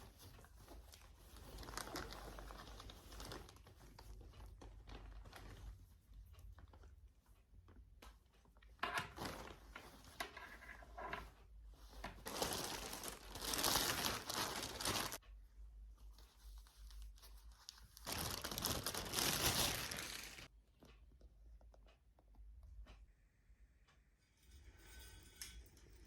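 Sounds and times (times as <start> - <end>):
crinkling and tearing: 0.3 - 5.6, 12.1 - 15.2, 16.8 - 20.5.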